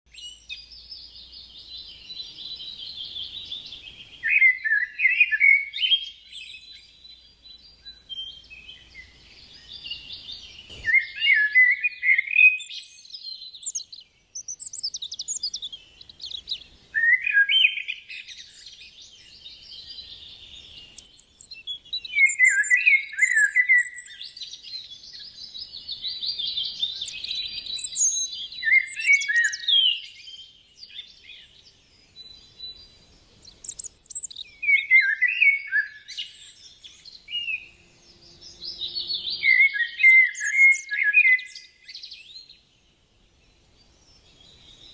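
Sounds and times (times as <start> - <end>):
songbirds twittering chorus: 0.1 - 44.9
bird song phrase sweeping downward: 25.0 - 42.7.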